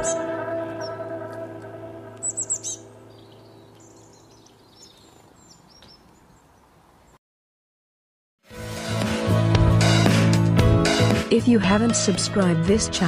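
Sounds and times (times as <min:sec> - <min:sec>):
small songbirds chirping: 0:00.0 - 0:01.0, 0:02.2 - 0:07.2
soft background music: 0:00.0 - 0:04.4, 0:10.8 - 0:13.0.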